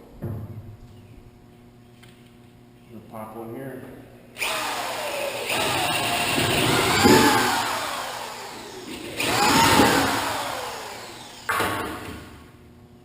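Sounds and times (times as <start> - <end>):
power drill running: 4.4 - 12.3.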